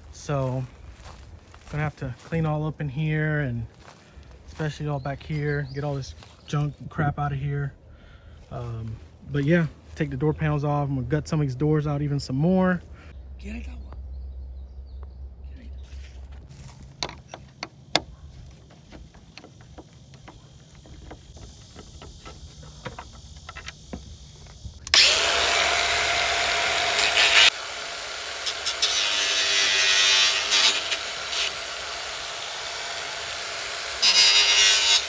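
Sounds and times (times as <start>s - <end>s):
clicks and knocks of hand work: 16.9s - 24.6s
power tool running: 18.5s - 35.0s.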